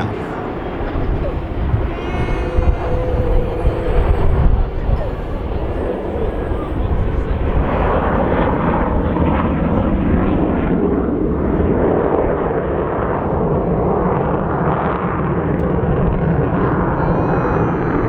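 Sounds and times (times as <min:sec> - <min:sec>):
jet engines roaring: 0:00.0 - 0:11.7.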